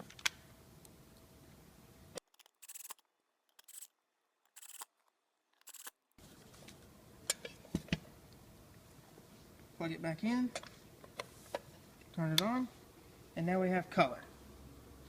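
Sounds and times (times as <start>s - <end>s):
screwdriver rasps: 2.2s - 3.9s, 4.5s - 5.0s, 5.6s - 6.0s.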